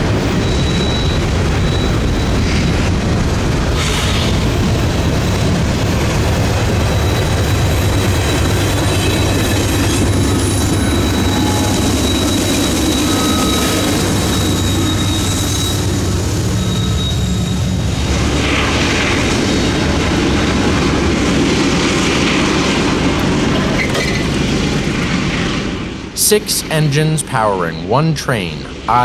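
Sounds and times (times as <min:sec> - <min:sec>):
high wheel squeal: 0:00.0 - 0:03.0, 0:03.7 - 0:20.8, 0:22.6 - 0:26.0
freight cars rolling: 0:00.0 - 0:26.2
diesel locomotives droning: 0:00.0 - 0:29.0.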